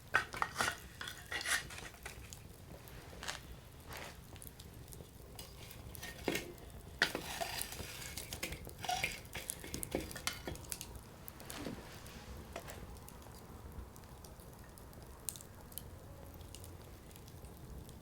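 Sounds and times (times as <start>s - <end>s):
fire hissing: 0.0s - 13.9s
firewood popping: 0.0s - 18.0s
wood fire crackling: 0.0s - 18.0s.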